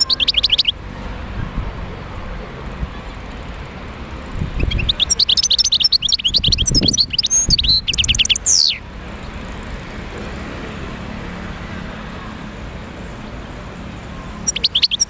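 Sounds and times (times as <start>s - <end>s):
goldfinch twittering song: 0.0s - 0.8s, 4.6s - 8.8s, 14.4s - 15.0s.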